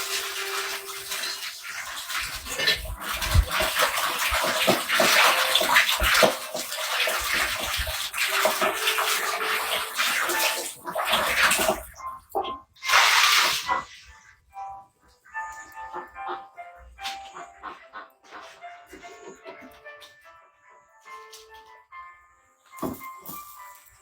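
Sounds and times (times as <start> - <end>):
water sloshing in a container: 0.0 - 14.2.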